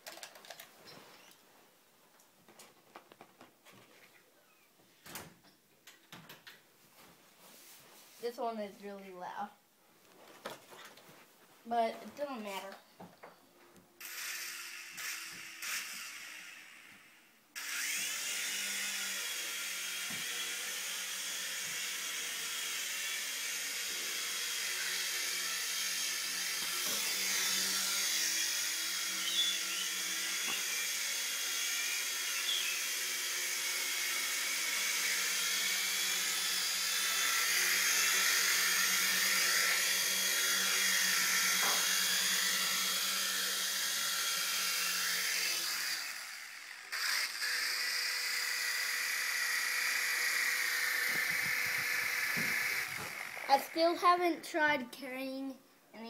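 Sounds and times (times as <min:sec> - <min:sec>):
toy helicopter rotors whining: 0:14.0 - 0:54.0.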